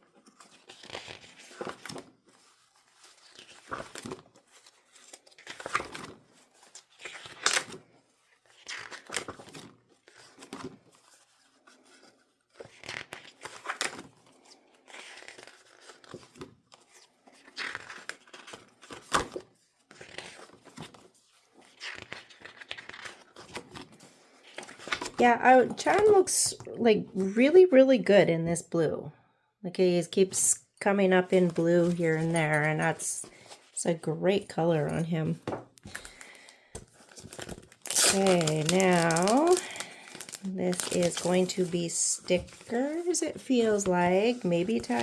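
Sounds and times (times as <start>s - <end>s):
paper calendar pages flipping: 0.1s - 7.8s, 8.4s - 26.8s, 34.4s - 45.0s.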